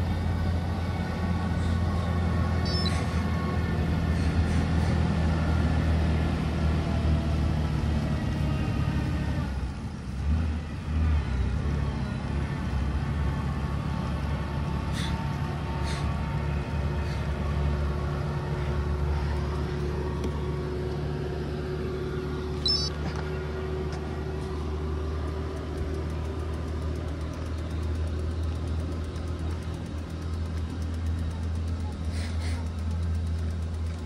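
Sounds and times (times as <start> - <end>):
vehicle engine humming: 0.0 - 34.0
short high chirps: 22.6 - 22.9.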